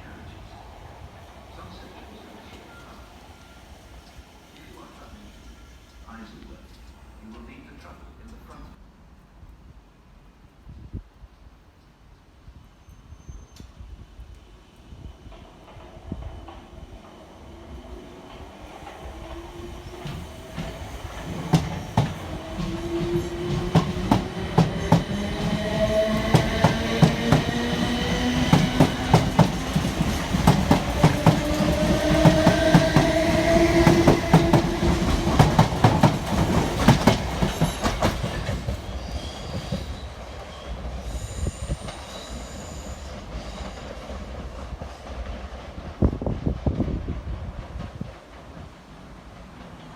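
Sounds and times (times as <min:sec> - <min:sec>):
train whine: 0:12.9 - 0:49.9
wheels clicking over rail joints: 0:20.0 - 0:39.0.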